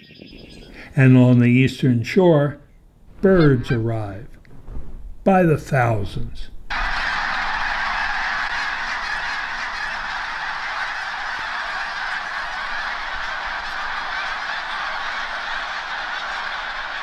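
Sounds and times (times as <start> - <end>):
flock of geese honking: 6.7 - 17.0.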